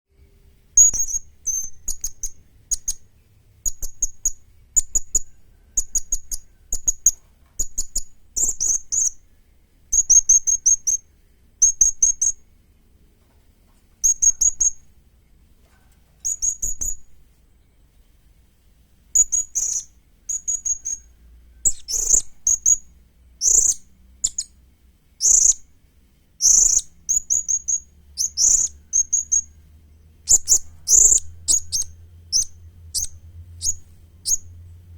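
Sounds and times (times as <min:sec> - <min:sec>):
parrot high-pitched chirps: 0:00.8 - 0:03.0, 0:19.2 - 0:24.6, 0:25.2 - 0:25.6, 0:26.4 - 0:29.6, 0:30.3 - 0:34.5.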